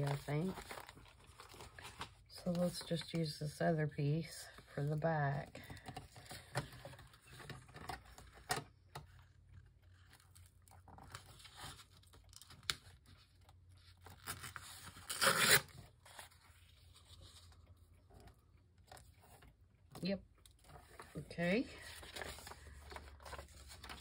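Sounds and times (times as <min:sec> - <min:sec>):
paper rustling and scraping: 0:00.0 - 0:03.1, 0:20.6 - 0:24.0
paper ripping: 0:14.0 - 0:16.4.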